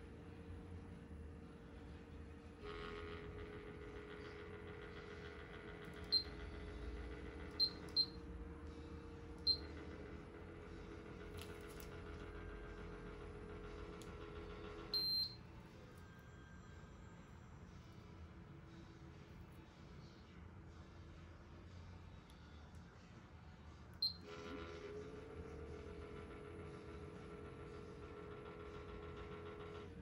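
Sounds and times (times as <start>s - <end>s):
fan motor hum: 0.0s - 16.0s, 24.0s - 30.0s
short electronic beeps: 15.0s - 15.4s.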